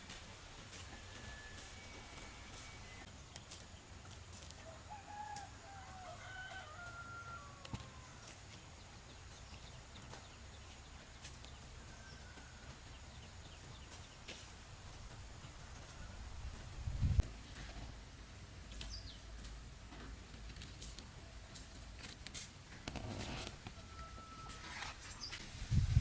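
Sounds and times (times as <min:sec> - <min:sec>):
rooster crowing faintly: 0:04.6 - 0:08.4, 0:23.6 - 0:25.3.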